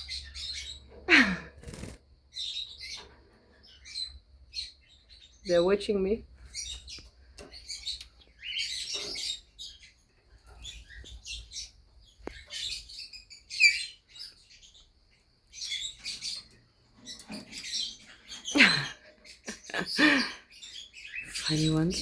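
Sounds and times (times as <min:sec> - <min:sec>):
cockatiels chirping: 0:06.5 - 0:14.9.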